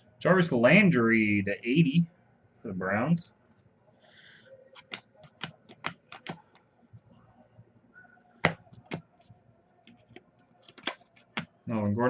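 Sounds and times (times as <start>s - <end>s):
trading cards flipping: 4.7s - 6.7s, 9.9s - 11.9s
card snaps: 4.8s - 6.4s, 10.6s - 11.5s.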